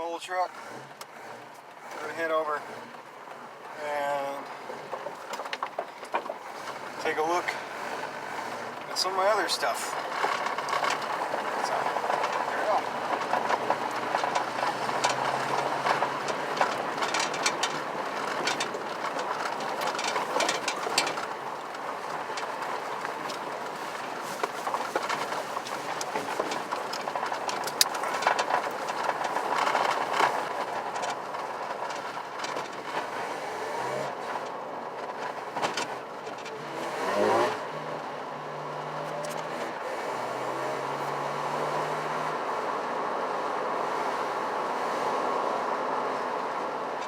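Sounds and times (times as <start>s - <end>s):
truck engine and road rumble: 0.0s - 47.0s
short rattles and clicks: 4.8s - 33.2s.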